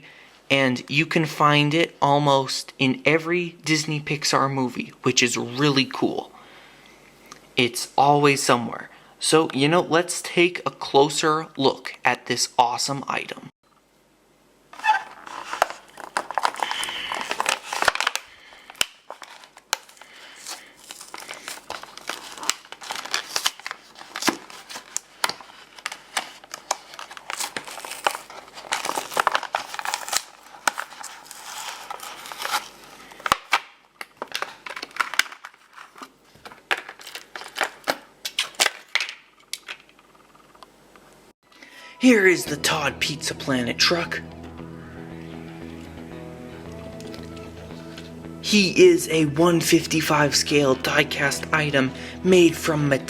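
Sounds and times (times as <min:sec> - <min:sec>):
plastic and cardboard crinkling: 0:14.8 - 0:40.0.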